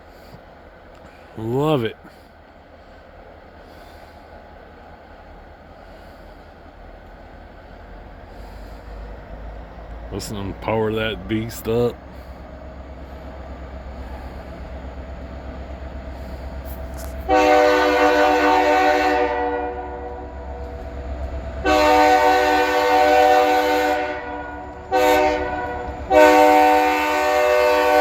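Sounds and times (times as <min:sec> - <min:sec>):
locomotive engine rumble: 0:00.0 - 0:28.0
locomotive horn blasts: 0:16.8 - 0:20.8, 0:21.6 - 0:28.0.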